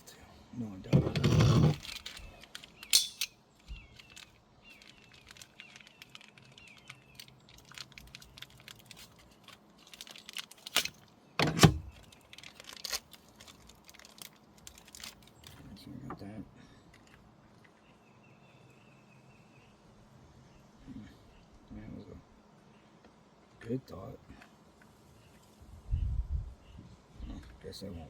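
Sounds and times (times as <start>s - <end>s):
clicks and knocks of parts handled: 0.9s - 15.6s.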